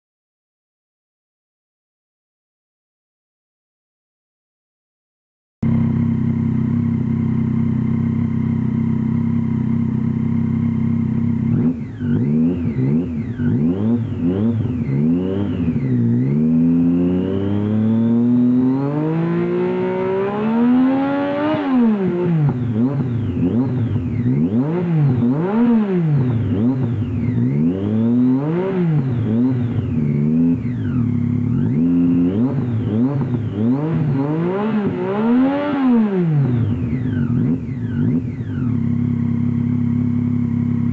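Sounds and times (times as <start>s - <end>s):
motorcycle engine idling: 5.6s - 16.4s, 22.2s - 24.5s, 29.1s - 33.6s, 36.5s - 40.9s
motorcycle engine revving: 5.6s - 40.9s.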